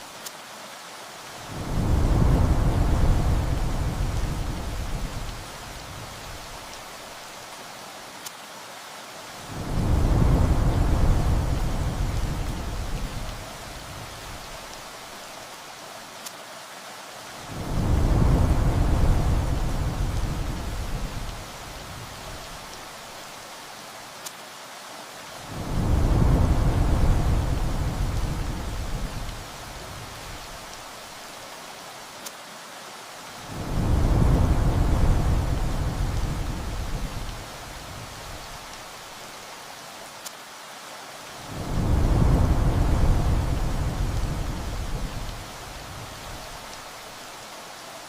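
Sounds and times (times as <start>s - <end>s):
steady rain: 0.0s - 48.0s
thunder rumbling: 1.5s - 6.6s, 9.5s - 14.6s, 17.5s - 22.6s, 25.5s - 30.6s, 33.5s - 38.6s, 41.4s - 46.6s.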